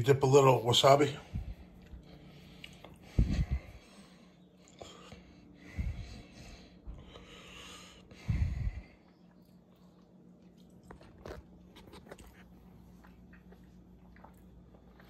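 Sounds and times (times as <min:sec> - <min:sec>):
faint chewing: 0:01.4 - 0:05.6, 0:09.0 - 0:15.0.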